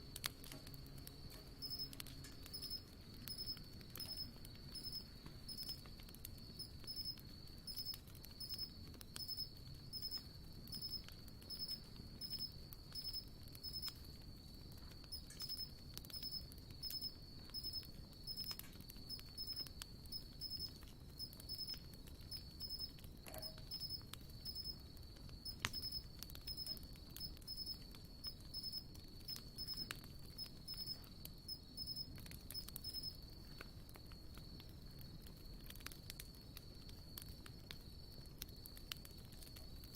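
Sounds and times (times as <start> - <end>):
campfire crackling and popping: 0.0 - 39.9
steady high chirping: 1.5 - 5.8, 6.6 - 13.9, 15.1 - 22.9, 23.7 - 24.8, 25.4 - 27.8, 28.5 - 32.0.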